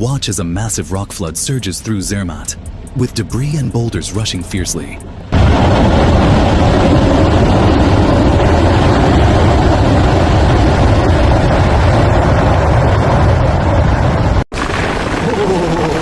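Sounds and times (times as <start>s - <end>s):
debris flow rushing with rumble: 5.3s - 16.0s.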